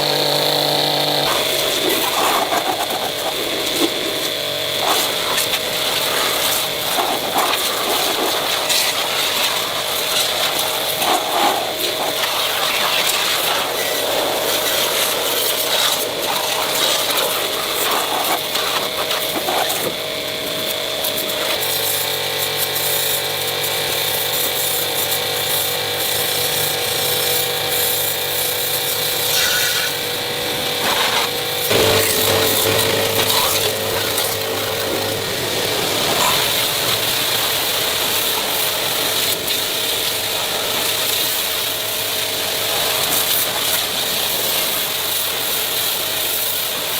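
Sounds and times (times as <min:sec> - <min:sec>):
power tools working on metal: 0:00.0 - 0:46.9.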